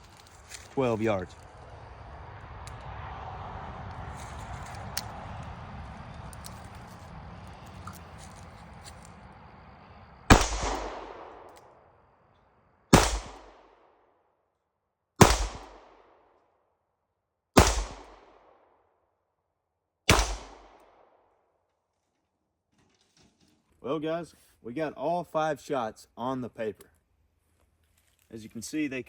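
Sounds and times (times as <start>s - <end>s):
revolver shots with echo: 10.3s - 11.5s, 13.0s - 13.5s, 15.2s - 15.8s, 17.6s - 18.2s, 20.1s - 20.8s.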